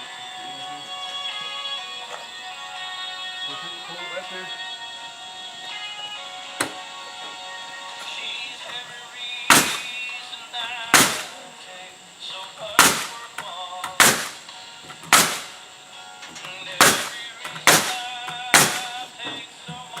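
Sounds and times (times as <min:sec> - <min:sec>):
country music on radio: 0:00.0 - 0:20.0
hammer striking nails into wood: 0:09.5 - 0:10.0, 0:11.0 - 0:11.4, 0:12.8 - 0:13.2, 0:13.9 - 0:15.6, 0:16.7 - 0:19.4.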